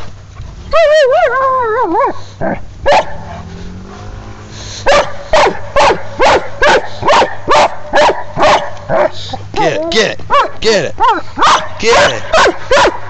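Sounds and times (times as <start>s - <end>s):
dog barking: 1.0s - 2.2s, 2.8s - 3.4s, 4.8s - 9.3s, 10.3s - 13.0s.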